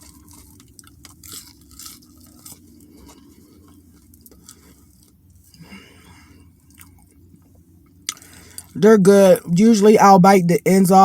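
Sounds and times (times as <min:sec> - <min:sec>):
person chewing fries: 0:00.0 - 0:08.8
low steady hum: 0:00.0 - 0:11.0.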